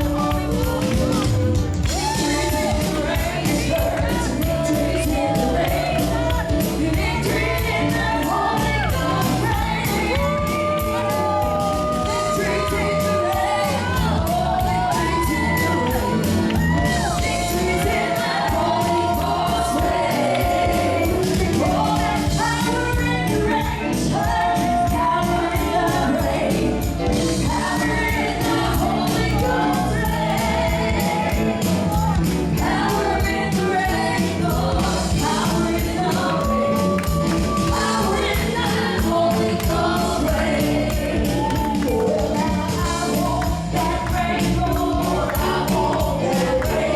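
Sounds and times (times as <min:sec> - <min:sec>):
band playing: 0:00.0 - 0:46.9
congregation singing gospel: 0:00.0 - 0:46.9
tambourine beat: 0:00.0 - 0:46.9.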